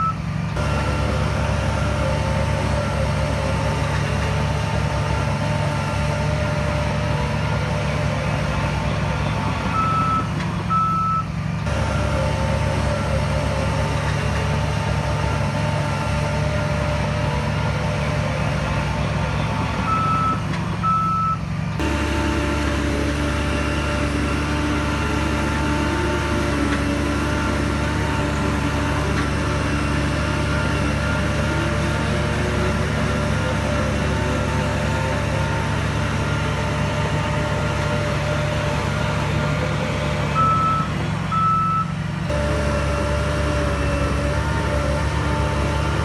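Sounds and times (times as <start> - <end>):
heavy diesel machine running: 0.0 - 46.0
reversing alarm beeping: 9.7 - 13.2, 19.8 - 21.4, 40.4 - 42.0.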